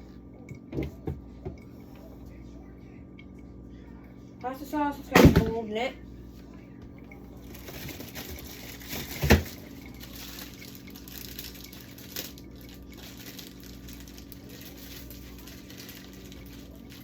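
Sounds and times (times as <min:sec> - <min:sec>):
light clatter of containers: 0:06.4 - 0:17.0.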